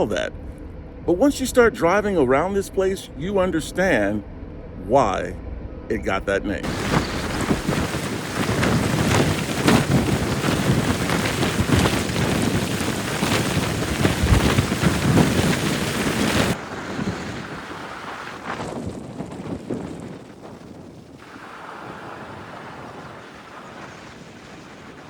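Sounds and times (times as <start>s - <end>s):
wind buffeting microphone: 6.0s - 25.0s.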